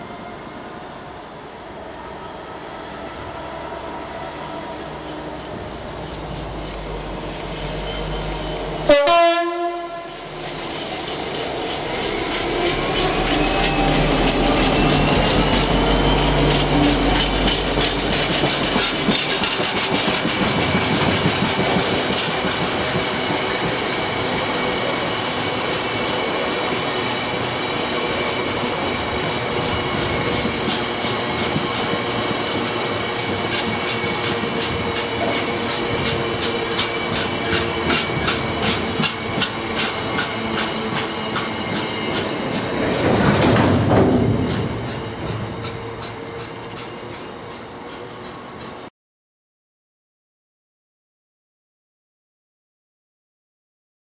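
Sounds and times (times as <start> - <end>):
diesel locomotive engine rumbling: 0.0 - 48.9
train horn blast: 8.8 - 10.3.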